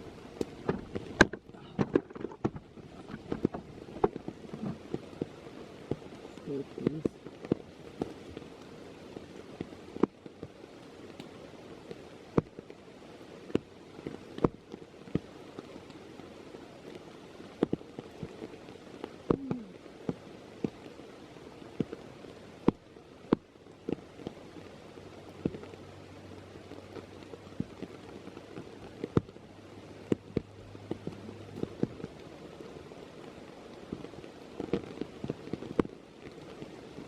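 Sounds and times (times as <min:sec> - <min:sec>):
large raindrops tapping: 0:00.0 - 0:37.0
steady rain in woodland: 0:00.0 - 0:37.0.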